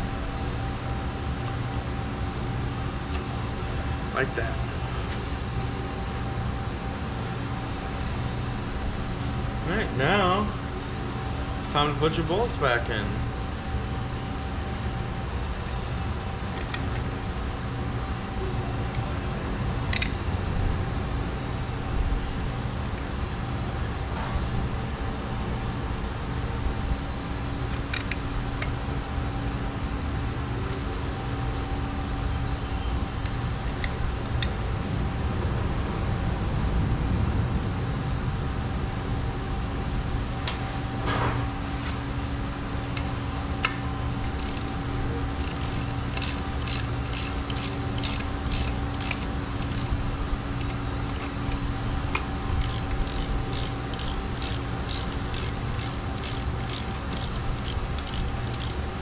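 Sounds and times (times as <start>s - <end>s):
steady low hum: 0.0s - 59.0s
ratchet wrench clicking: 19.9s - 20.2s, 27.7s - 28.2s, 44.3s - 50.0s, 50.6s - 59.0s.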